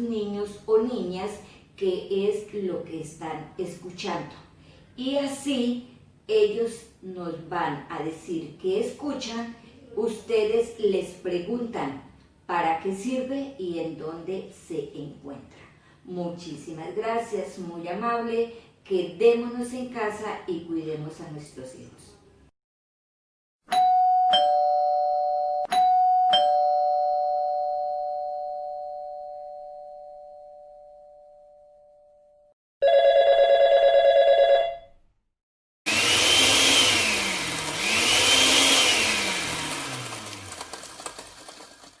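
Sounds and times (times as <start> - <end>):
two-tone doorbell chime: 23.7 - 34.7
blender motor running: 35.9 - 42.0.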